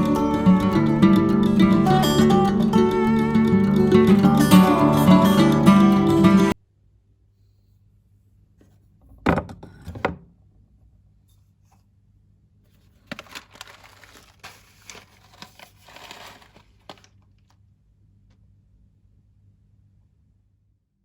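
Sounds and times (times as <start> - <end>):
crinkling and rustling: 12.7 - 17.7.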